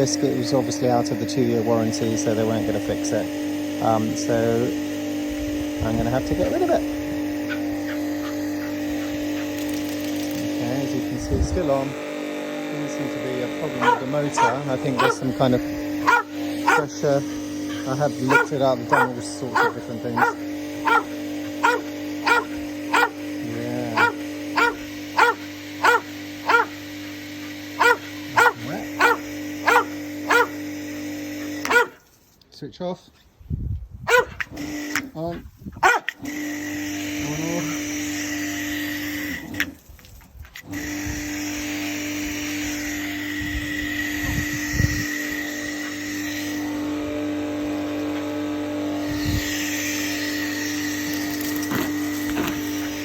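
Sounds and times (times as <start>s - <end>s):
pressure washer motor humming: 0.0s - 32.3s, 34.1s - 53.0s
dog barking: 13.8s - 15.3s, 16.0s - 17.0s, 17.7s - 23.2s, 23.9s - 26.8s, 27.8s - 30.6s, 31.6s - 32.0s, 34.1s - 34.5s, 35.8s - 36.2s.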